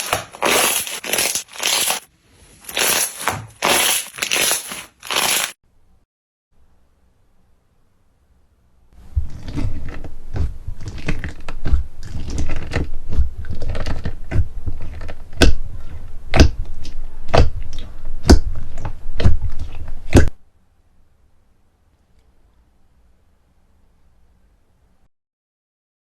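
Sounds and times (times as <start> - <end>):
slime squeezed with crackling crunch: 0.0 - 5.6.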